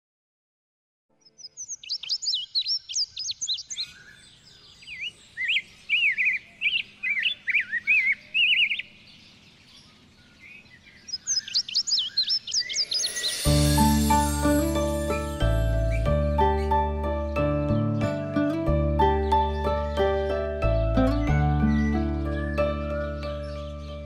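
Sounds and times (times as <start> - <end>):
bird chirping high sliding notes: 11.2 - 24.0.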